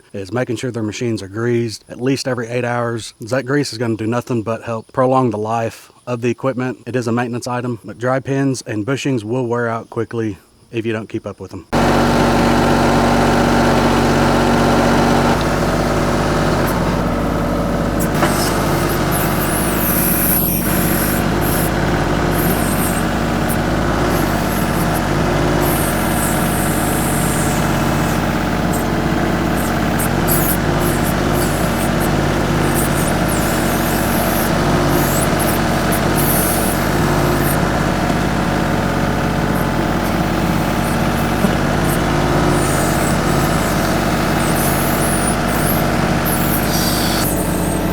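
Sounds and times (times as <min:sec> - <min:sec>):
tractor diesel engine running: 0:11.7 - 0:47.9
high-pitched hissing: 0:11.8 - 0:47.9.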